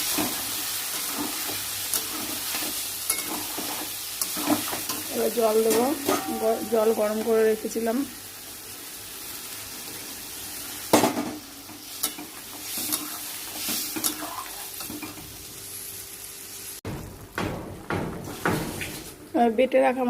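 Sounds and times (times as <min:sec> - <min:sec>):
spatula scraping a pan: 0:00.0 - 0:07.6, 0:11.8 - 0:15.1
vegetables sizzling in a pan: 0:00.0 - 0:16.8.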